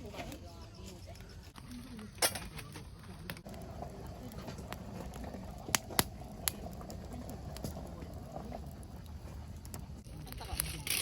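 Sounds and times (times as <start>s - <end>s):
campfire wood crackling: 0.0s - 11.0s
fire popping: 0.0s - 11.0s.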